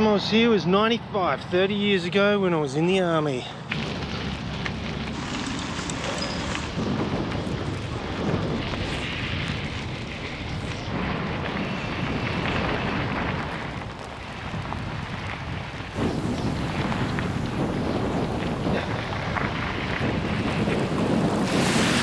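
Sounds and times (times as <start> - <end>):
wind buffeting microphone: 3.7 - 22.0.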